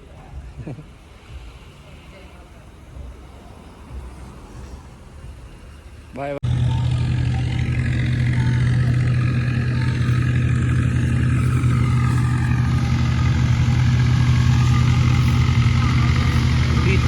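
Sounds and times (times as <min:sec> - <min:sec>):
tractor diesel engine running: 0:06.4 - 0:17.0.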